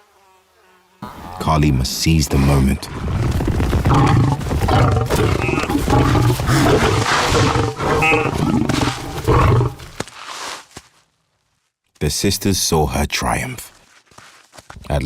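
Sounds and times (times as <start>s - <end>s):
lions growling: 3.8s - 10.0s.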